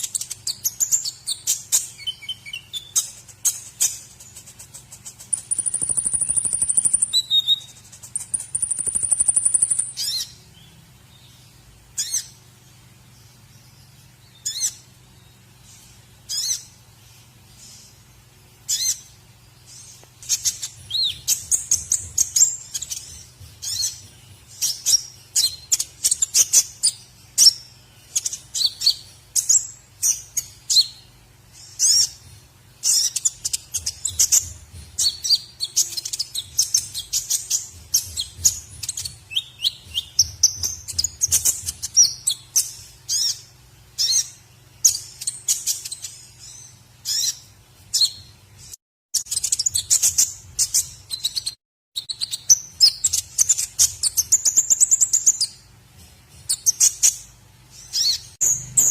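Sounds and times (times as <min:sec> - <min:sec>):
songbird chirps and whistles: 0:00.0 - 0:04.2, 0:05.0 - 0:12.4, 0:13.4 - 0:16.8, 0:18.7 - 0:55.7, 0:56.4 - 0:58.9.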